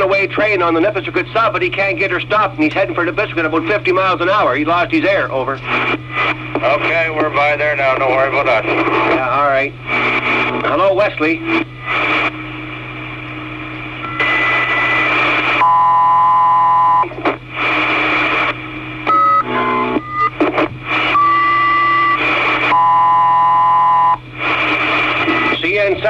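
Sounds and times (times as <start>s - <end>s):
radio static hiss: 0.0s - 26.0s
electronic tones and beeps: 14.0s - 17.2s, 19.1s - 24.2s.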